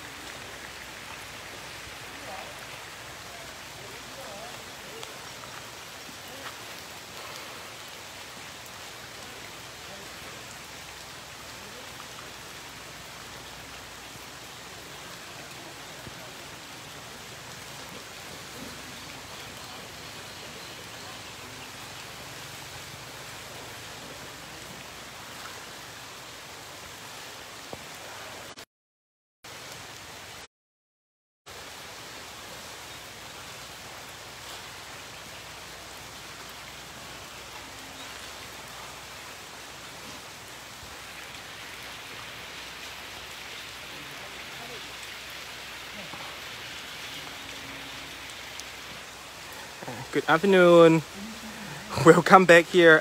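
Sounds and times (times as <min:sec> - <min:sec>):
rain on grass and puddles: 0:00.0 - 0:28.7, 0:29.5 - 0:30.5, 0:31.5 - 0:53.0.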